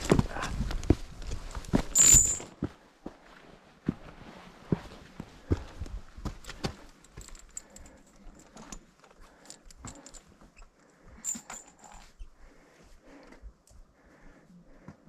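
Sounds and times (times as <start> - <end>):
footsteps on a trail: 0.0 - 10.5.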